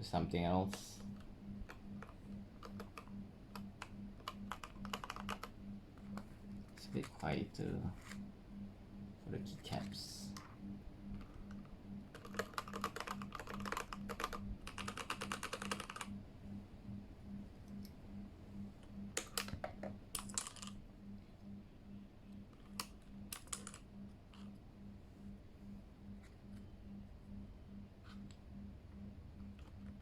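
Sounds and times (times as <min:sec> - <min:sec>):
mechanical keyboard typing: 0:00.6 - 0:07.8, 0:11.2 - 0:16.2, 0:19.1 - 0:20.8, 0:22.6 - 0:23.9.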